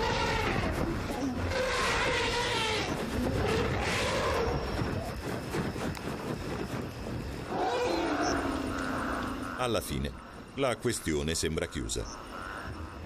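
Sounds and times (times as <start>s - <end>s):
elephants and lions calling: 0.0s - 5.2s, 7.4s - 10.1s.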